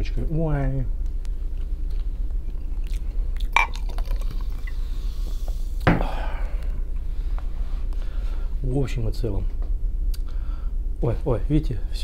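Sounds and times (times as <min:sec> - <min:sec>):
low steady hum: 0:00.0 - 0:12.0
man chewing food: 0:01.4 - 0:05.7.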